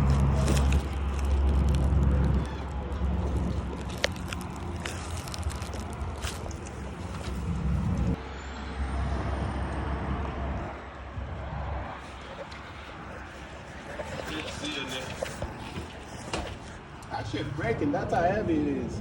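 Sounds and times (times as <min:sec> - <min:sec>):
heavy vehicle engine rumbling: 0:00.0 - 0:19.0.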